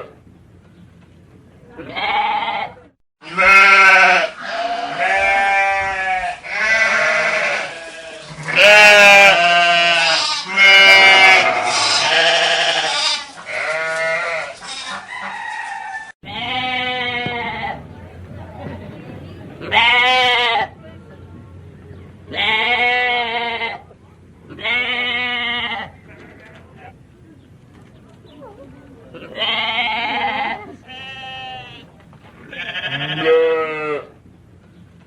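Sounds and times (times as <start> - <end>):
livestock bleating: 1.8 - 15.0, 16.2 - 17.8, 22.3 - 23.9, 24.5 - 27.0, 29.1 - 34.2.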